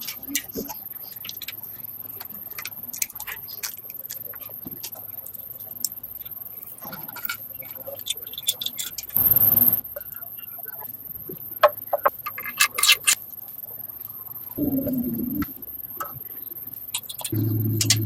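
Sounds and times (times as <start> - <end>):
hand tools clicking and tapping: 17.0 - 18.0.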